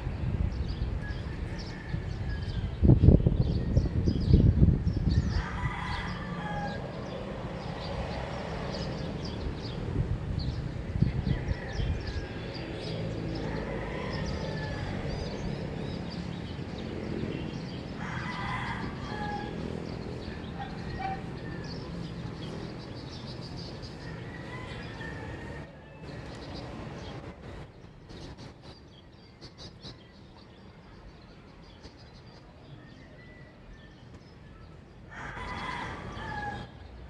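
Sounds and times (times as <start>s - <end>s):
small birds chirping: 0.0s - 37.0s
roosters crowing: 1.0s - 3.1s, 5.1s - 9.4s, 11.0s - 16.4s, 17.2s - 27.1s, 35.0s - 37.0s.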